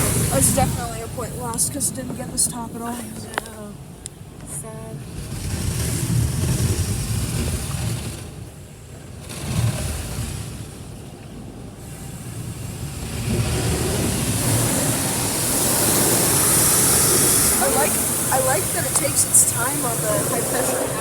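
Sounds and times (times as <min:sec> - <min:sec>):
high-pressure water spraying car: 0:00.0 - 0:03.4, 0:05.0 - 0:11.1, 0:11.7 - 0:21.0.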